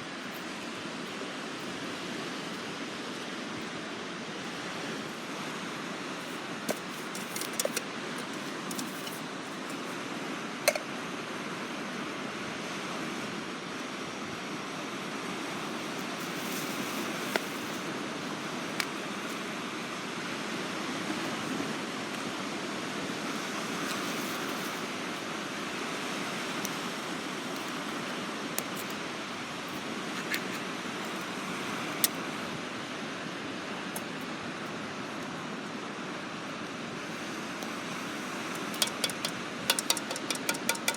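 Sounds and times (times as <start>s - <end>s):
waves washing on shore: 7.9s - 39.7s.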